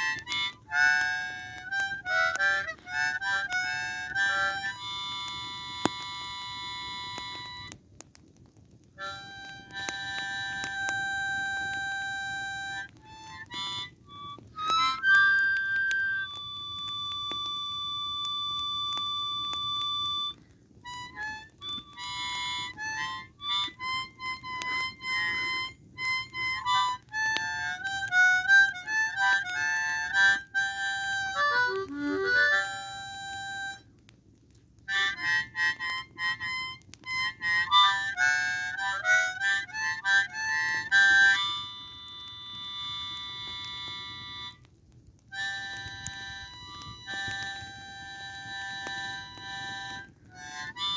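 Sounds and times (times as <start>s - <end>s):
harmonica melody: 0.0s - 8.1s, 8.9s - 34.0s, 34.8s - 50.9s.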